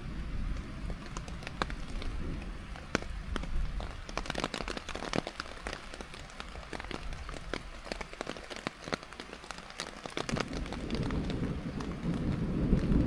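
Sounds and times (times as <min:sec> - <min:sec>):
rain falling: 0:00.0 - 0:13.0
raindrops tapping near microphone: 0:00.0 - 0:13.0.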